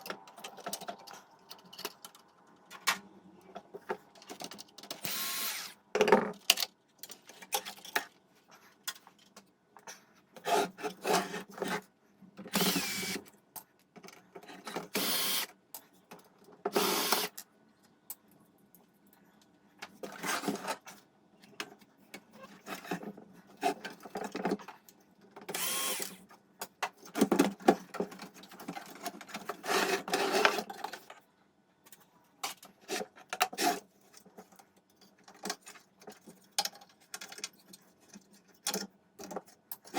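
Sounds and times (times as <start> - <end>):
small power tool whirring: 5.0 - 5.8, 12.5 - 13.2, 14.9 - 15.5, 16.7 - 17.3, 25.5 - 26.2.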